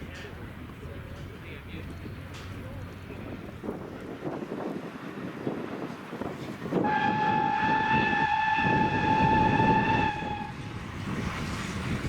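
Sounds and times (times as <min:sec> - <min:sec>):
moving train rumble: 0:00.0 - 0:12.0
locomotive whistle: 0:06.8 - 0:10.7.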